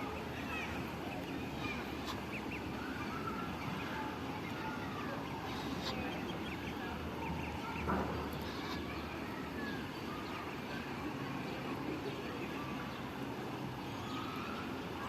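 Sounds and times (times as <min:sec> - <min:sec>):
birds chirping: 0:00.0 - 0:15.0
steady background hum: 0:00.0 - 0:15.0.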